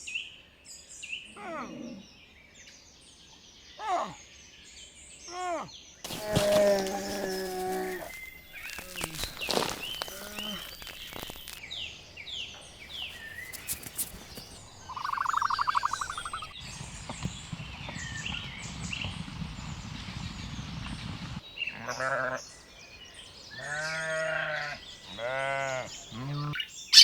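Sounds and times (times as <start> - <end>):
birds chirping: 6.0 - 16.7, 21.4 - 27.0.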